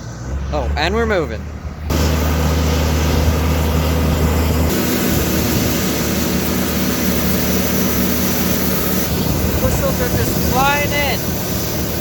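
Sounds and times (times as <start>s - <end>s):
tractor engine under load: 0.0s - 12.0s
hiss: 4.7s - 12.0s.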